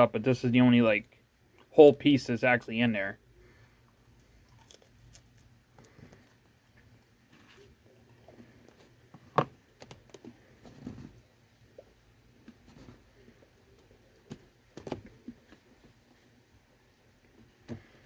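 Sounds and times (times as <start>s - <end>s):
chewing crunchy nut bar: 4.2s - 6.3s.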